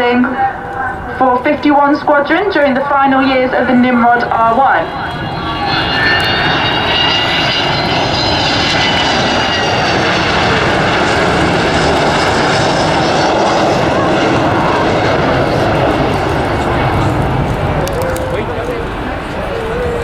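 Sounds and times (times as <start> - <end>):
jet airliner flying by: 0.0 - 20.0.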